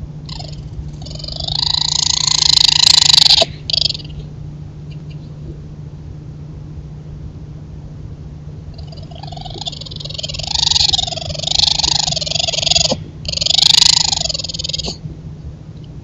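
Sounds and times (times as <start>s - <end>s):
steady low hum: 0.0s - 16.0s
raccoons making mating calls: 0.3s - 4.3s, 8.8s - 15.3s.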